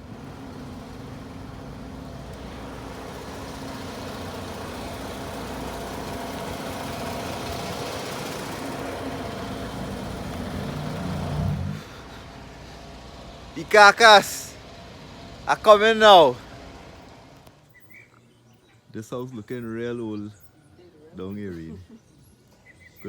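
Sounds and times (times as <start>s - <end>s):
road hiss: 0.0s - 17.8s
vehicle engine running: 0.0s - 17.8s.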